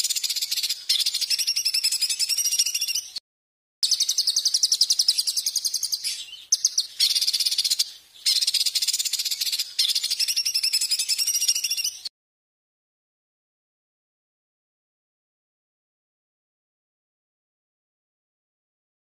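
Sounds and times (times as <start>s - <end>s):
songbird trilling: 0.0s - 3.2s, 3.8s - 12.1s.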